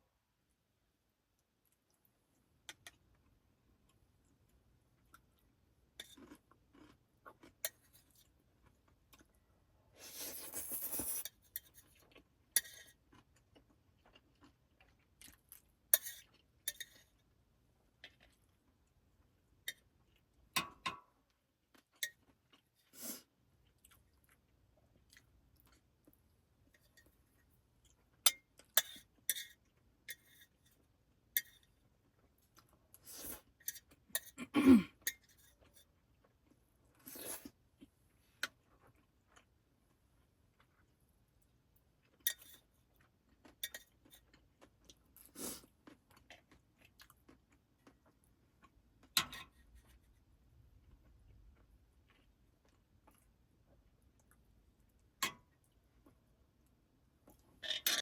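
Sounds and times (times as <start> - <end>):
chewing and crunching: 3.9 - 9.4, 11.4 - 17.2, 21.7 - 30.8, 35.1 - 56.2.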